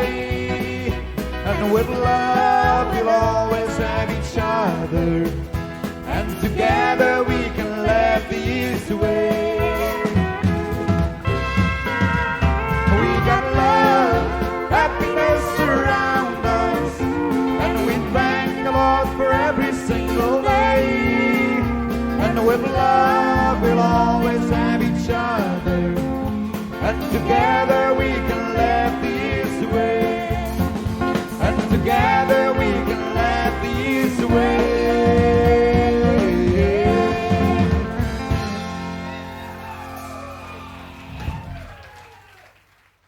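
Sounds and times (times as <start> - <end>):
drums and bass: 0.0 - 42.3
electric guitar lead: 8.0 - 41.7.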